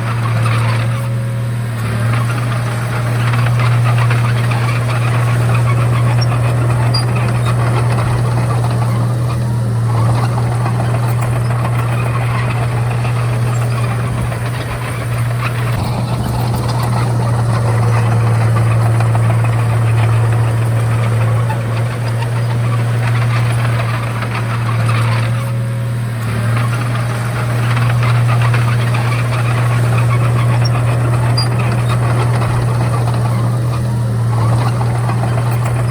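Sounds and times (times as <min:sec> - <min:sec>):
bulldozer diesel engine droning: 0:00.0 - 0:35.9.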